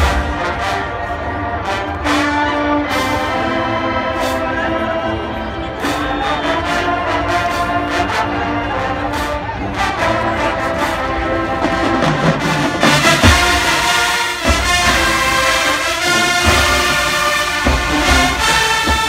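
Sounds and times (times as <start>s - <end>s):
brass chords: 0.0s - 19.0s
drum hits: 12.0s - 19.0s.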